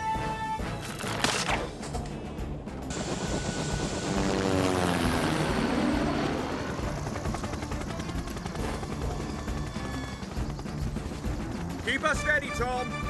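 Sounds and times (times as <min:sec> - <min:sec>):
cartoon helicopter rotor chopping: 0:02.9 - 0:13.0.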